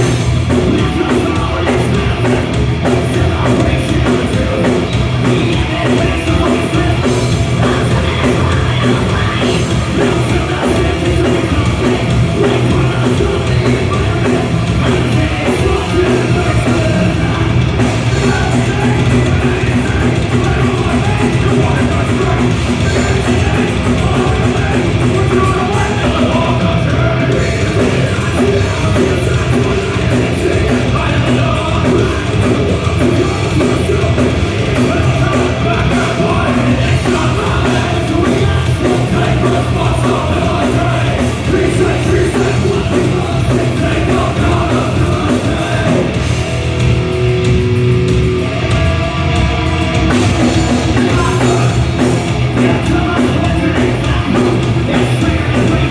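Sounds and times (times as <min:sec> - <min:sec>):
hard rock music: 0:00.0 - 0:55.9
yelled vocals: 0:00.0 - 0:55.9.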